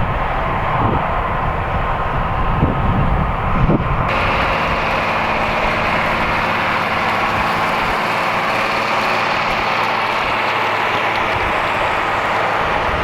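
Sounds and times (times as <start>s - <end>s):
wind rumble on microphone: 0.0s - 8.3s, 11.2s - 13.0s
tractor engine droning: 0.0s - 13.0s.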